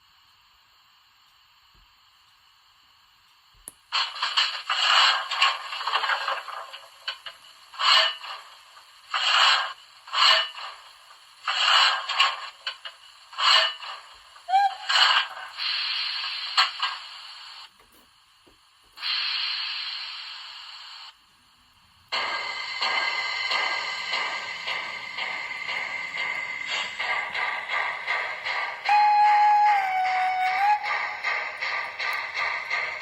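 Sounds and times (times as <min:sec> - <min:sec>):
steam hisses: 0:03.9 - 0:17.8, 0:18.9 - 0:33.0
steam exhaust chuffs: 0:22.0 - 0:33.0.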